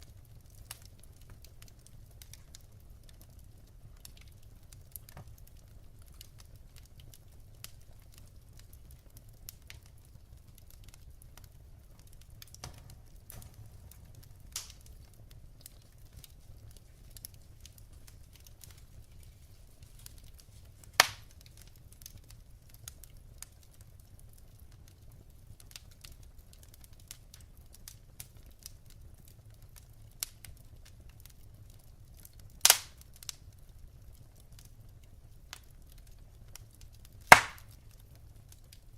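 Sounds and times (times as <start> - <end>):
loud fire pops: 0.0 - 31.5, 32.2 - 33.5, 34.1 - 38.9
wood fire crackling: 0.0 - 38.9.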